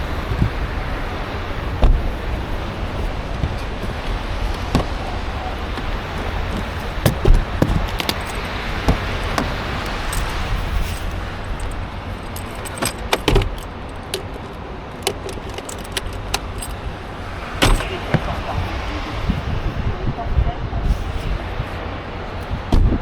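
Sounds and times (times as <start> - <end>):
sharp clicks and clinks: 4.5 - 17.0, 17.6 - 18.1.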